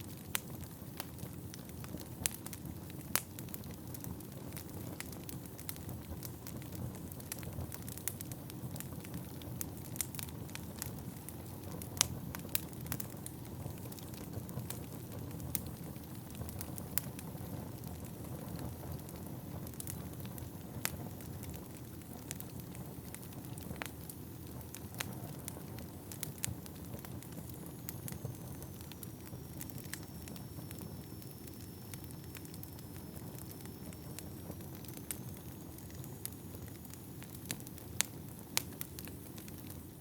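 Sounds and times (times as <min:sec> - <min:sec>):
wood crackling and popping: 0:00.0 - 0:40.0
flames rushing: 0:00.1 - 0:40.0
faint high whistle: 0:27.5 - 0:37.3.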